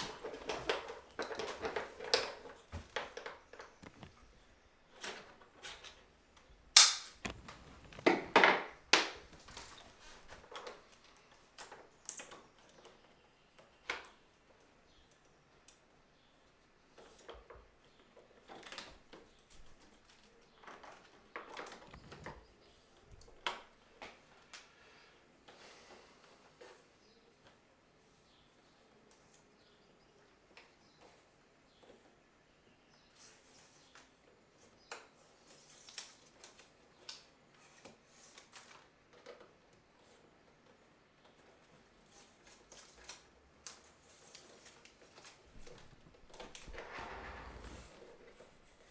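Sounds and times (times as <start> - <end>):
light taps: 0.0 - 5.1
rustles: 0.0 - 10.9, 21.6 - 23.6, 42.2 - 48.9
sharp click: 6.7 - 9.6.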